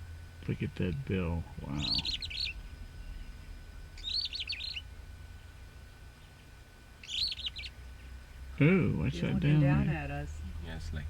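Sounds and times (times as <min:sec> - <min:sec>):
small bird chattering: 0:01.7 - 0:02.6, 0:04.0 - 0:04.9, 0:06.1 - 0:07.9.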